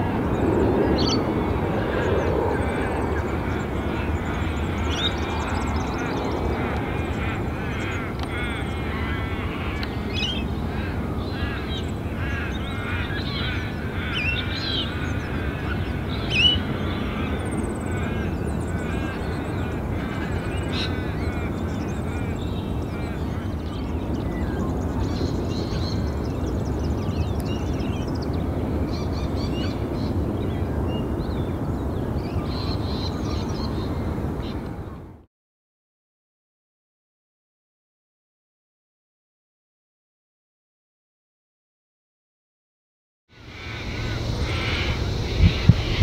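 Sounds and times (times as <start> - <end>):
birds calling: 0.0 - 34.9, 43.4 - 46.0
steady low rumble: 43.5 - 46.0.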